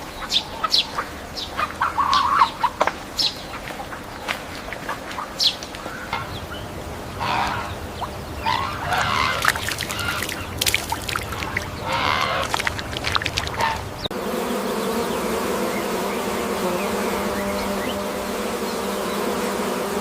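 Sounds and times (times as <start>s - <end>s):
bee buzzing: 6.2s - 20.0s.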